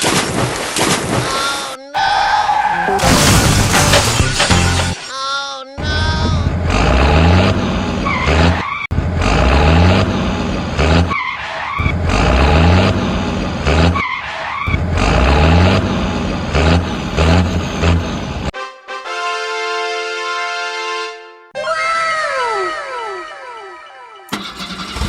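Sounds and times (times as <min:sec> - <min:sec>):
tyres skidding and squealing: 0:01.3 - 0:05.2, 0:05.8 - 0:18.5
vehicle engine revving: 0:06.4 - 0:11.2, 0:11.8 - 0:18.5, 0:24.3 - 0:25.0.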